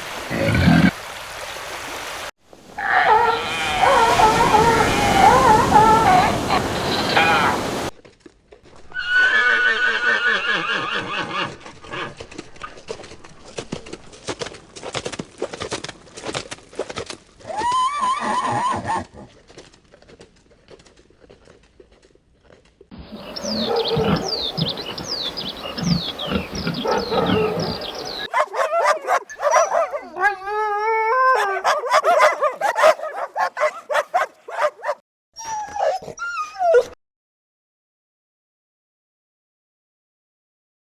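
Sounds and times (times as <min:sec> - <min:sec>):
dog yipping: 0:02.8 - 0:07.7, 0:23.5 - 0:24.4, 0:26.8 - 0:37.0
horse whinnying: 0:02.8 - 0:07.9, 0:08.9 - 0:12.0, 0:17.5 - 0:19.1, 0:23.2 - 0:35.0
hoofbeats: 0:19.2 - 0:30.0, 0:31.4 - 0:35.0.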